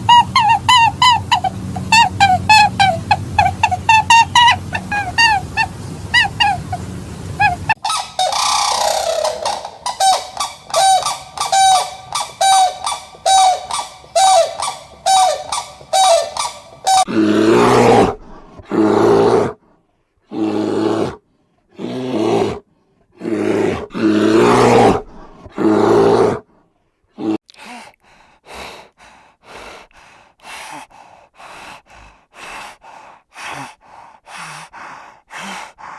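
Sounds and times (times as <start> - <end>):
rough low animal calls: 7.4 - 17.2
short pitched animal calls: 7.8 - 17.1.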